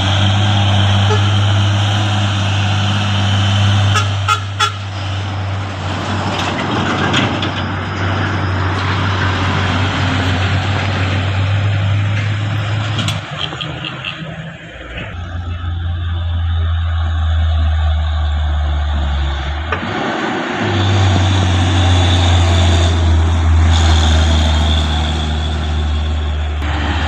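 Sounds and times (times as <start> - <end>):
truck engine droning: 0.0 - 27.0
short horn toots: 1.0 - 1.4, 3.9 - 4.9.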